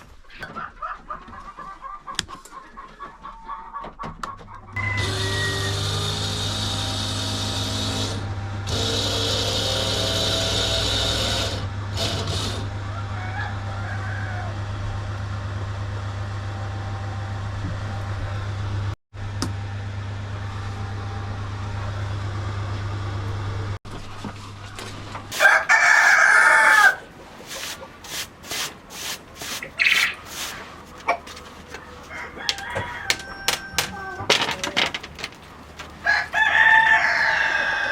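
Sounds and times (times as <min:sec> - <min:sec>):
chicken calls: 0:00.0 - 0:05.8, 0:24.4 - 0:28.0, 0:29.4 - 0:37.9
rooster crowing: 0:04.8 - 0:05.8, 0:12.8 - 0:14.8, 0:25.3 - 0:27.1, 0:31.7 - 0:34.7, 0:36.0 - 0:37.9
knocks and clicks: 0:32.5 - 0:36.0.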